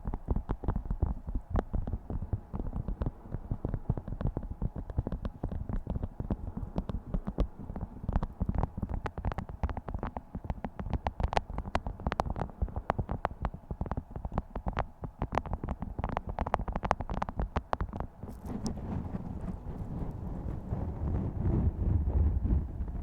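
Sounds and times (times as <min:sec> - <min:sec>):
low rumble: 0:18.3 - 0:23.0.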